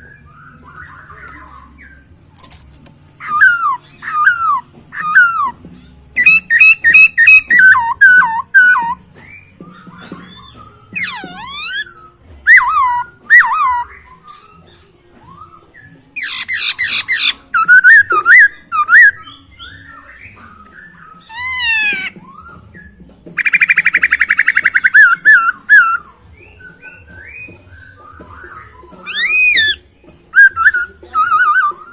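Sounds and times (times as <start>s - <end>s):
bird whistling song: 0.0s - 31.9s
bird rattling trills: 9.8s - 11.9s, 29.0s - 29.8s.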